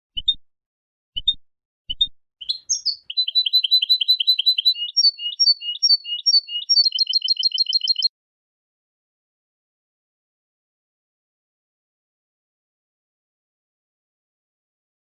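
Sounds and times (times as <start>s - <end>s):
goldfinch singing: 2.4s - 8.1s.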